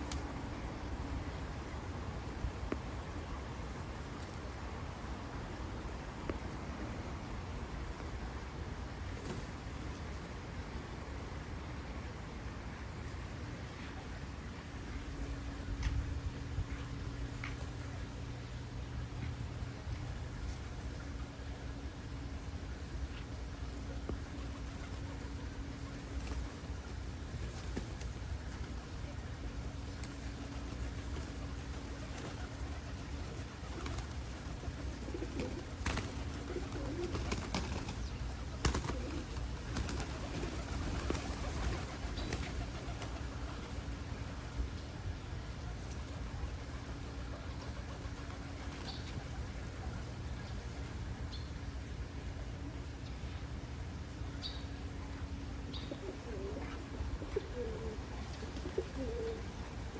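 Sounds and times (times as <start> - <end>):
pigeons cooing: 32.0 - 43.7, 55.7 - 59.8.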